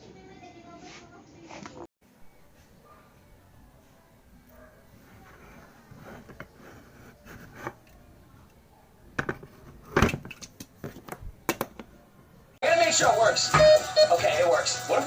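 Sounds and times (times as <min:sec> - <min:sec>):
hard object clicking and knocking: 0:09.2 - 0:11.9.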